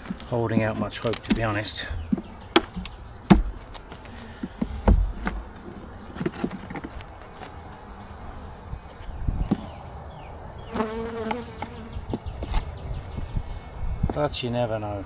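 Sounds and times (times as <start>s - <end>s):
knocks and clicks on a hive: 0.8s - 5.5s
honeybees buzzing: 1.2s - 13.8s.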